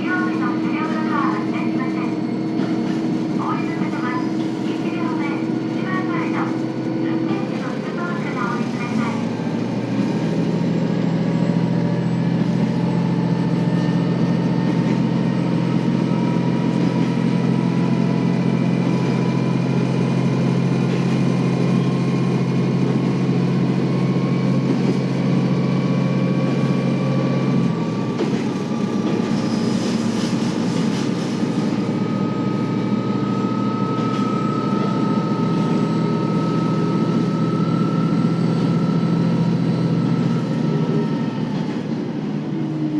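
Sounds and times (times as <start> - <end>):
diesel railcar engine droning: 0.0 - 42.9.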